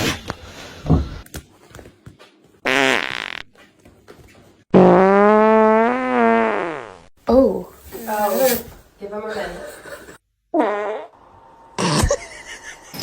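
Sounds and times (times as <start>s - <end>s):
long buzzy fart: 2.6s - 3.5s, 4.7s - 7.1s, 7.8s - 8.7s, 9.5s - 11.2s
short buzzy sound: 7.7s - 8.8s.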